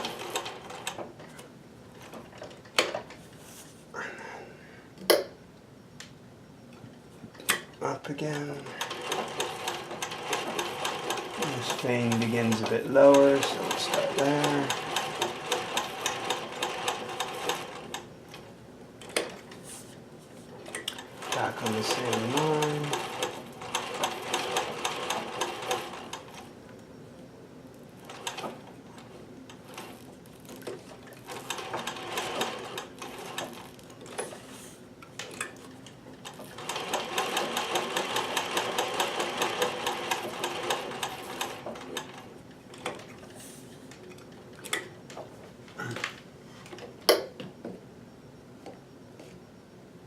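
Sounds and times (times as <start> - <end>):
sewing machine stitching: 8.4 - 18.0, 20.7 - 26.4, 29.7 - 34.3, 36.2 - 43.1.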